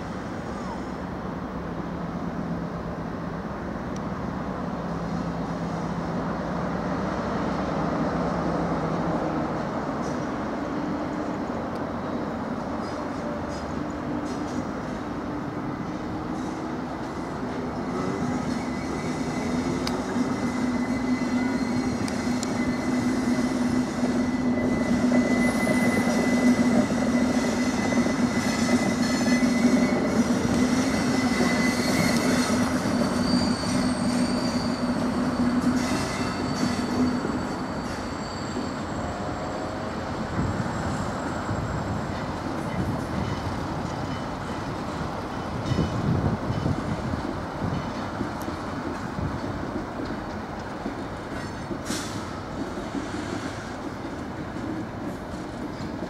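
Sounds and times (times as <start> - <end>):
diesel locomotive engine hum: 0.0 - 56.0
wheels rumbling on track: 0.0 - 56.0
high wheel squeal: 15.7 - 46.8.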